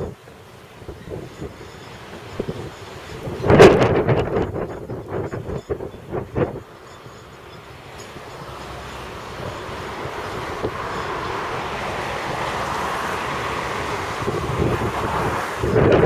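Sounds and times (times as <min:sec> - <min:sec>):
freight train wheels rumbling on rail: 0:00.0 - 0:16.0
wind buffeting microphone: 0:00.0 - 0:16.0.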